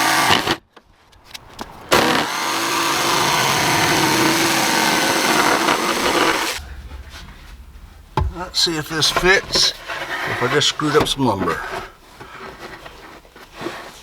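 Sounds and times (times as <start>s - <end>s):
power saw cutting wood: 0.0s - 0.6s, 1.9s - 6.6s.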